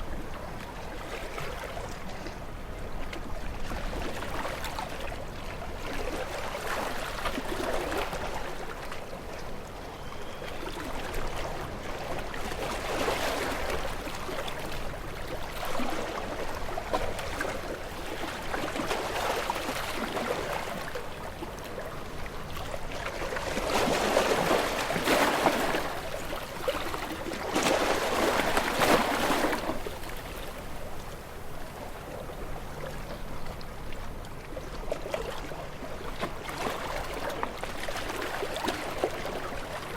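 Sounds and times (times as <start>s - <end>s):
ocean waves breaking: 10.6s - 39.9s.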